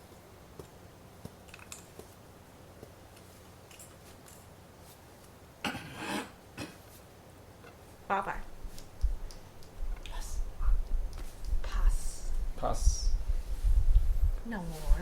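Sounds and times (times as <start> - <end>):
board game pieces clicking: 1.3 - 2.1.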